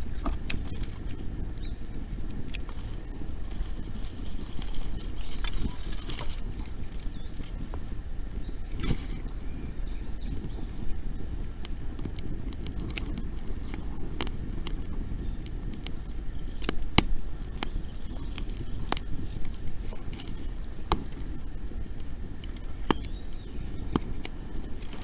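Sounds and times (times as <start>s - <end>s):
bonfire crackling: 0.0s - 25.0s
low rumble of fire: 0.0s - 25.0s.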